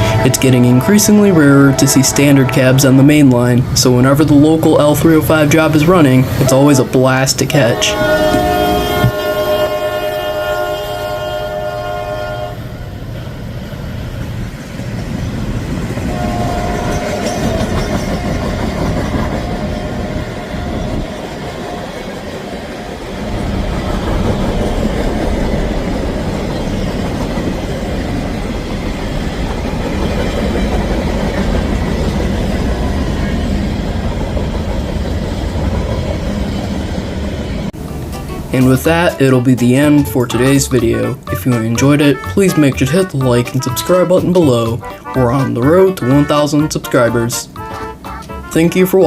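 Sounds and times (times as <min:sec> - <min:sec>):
locomotive air horn chord: 0:00.0 - 0:03.8, 0:07.4 - 0:12.8, 0:16.1 - 0:18.5, 0:37.8 - 0:49.0
freight train rumbling past: 0:00.0 - 0:49.0.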